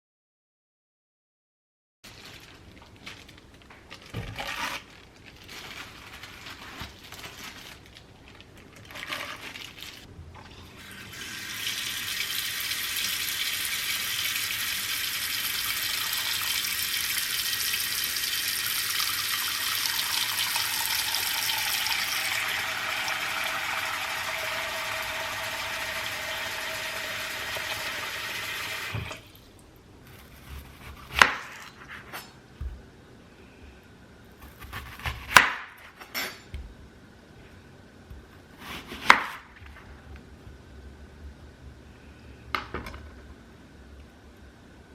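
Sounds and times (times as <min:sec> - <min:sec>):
tap running water into a vessel: 0:15.6 - 0:29.2.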